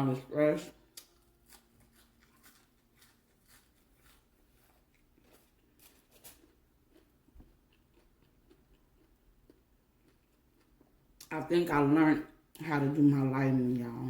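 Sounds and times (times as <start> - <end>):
chewing crispy fried chicken: 0.7 - 11.3.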